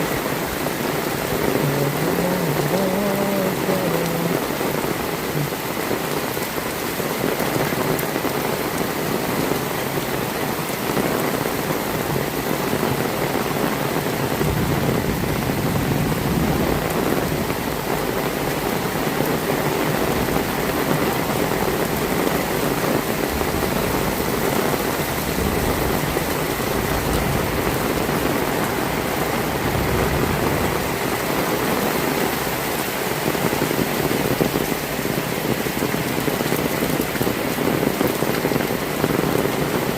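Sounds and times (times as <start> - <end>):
heavy rain falling: 0.0 - 39.9
low rumble: 23.1 - 31.0.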